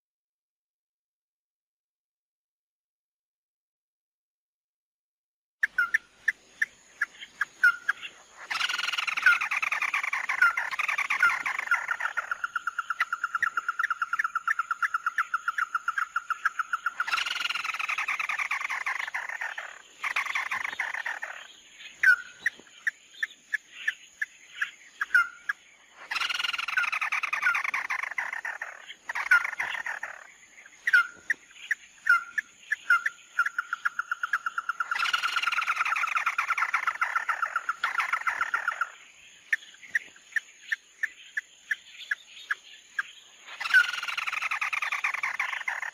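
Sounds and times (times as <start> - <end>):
bird trill: 5.6 - 45.9
whistled bird notes: 5.6 - 45.9
harsh rasping bird phrases: 26.0 - 30.3.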